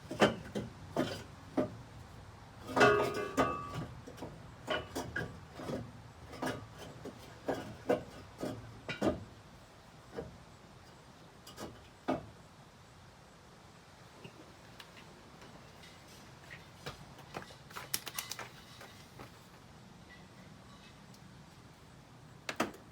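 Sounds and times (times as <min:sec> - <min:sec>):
metal knocks and scrapes: 0:02.6 - 0:09.3.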